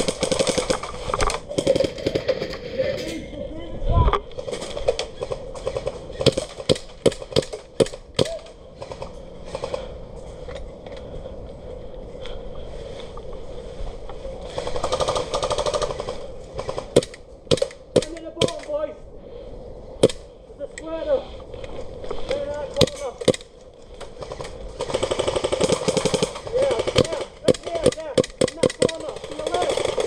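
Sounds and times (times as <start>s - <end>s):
airsoft gun full-auto rattle: 0.0s - 2.6s, 4.4s - 8.0s, 14.5s - 18.1s, 22.8s - 30.0s.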